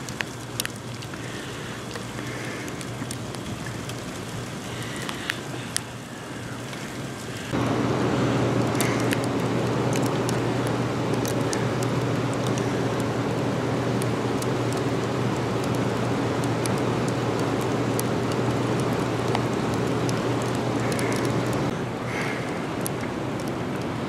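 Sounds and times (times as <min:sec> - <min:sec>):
constant low hum: 0:00.0 - 0:24.0
freezing rain falling: 0:00.0 - 0:24.0
drops ticking on surfaces: 0:08.6 - 0:21.7.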